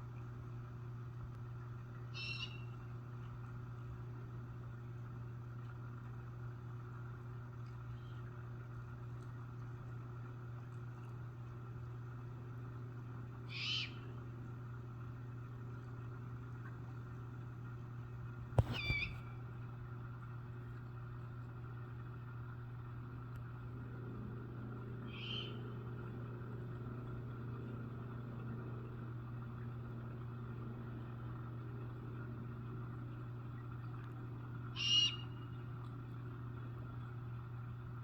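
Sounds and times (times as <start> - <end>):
steady low hum: 0.0 - 38.0
barn owls calling: 2.1 - 2.8, 13.5 - 14.1, 18.6 - 19.3, 25.1 - 25.6, 34.7 - 35.5.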